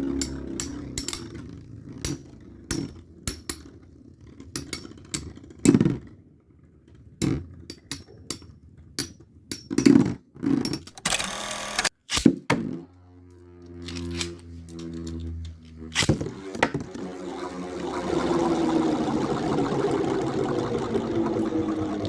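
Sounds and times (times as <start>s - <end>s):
spinning top whirring: 13.1s - 22.0s.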